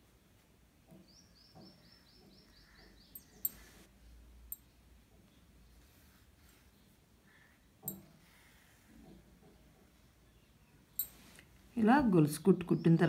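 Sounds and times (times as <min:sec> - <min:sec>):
bird chirping faintly: 0:00.8 - 0:11.2.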